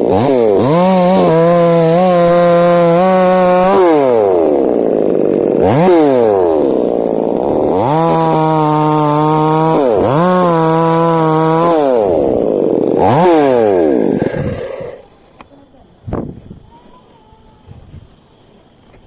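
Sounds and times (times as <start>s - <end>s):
chainsaw revving: 0.0s - 15.1s.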